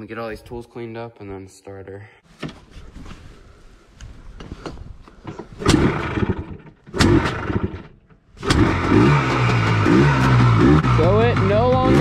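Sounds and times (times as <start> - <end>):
two-stroke engine starting: 5.6 - 12.0.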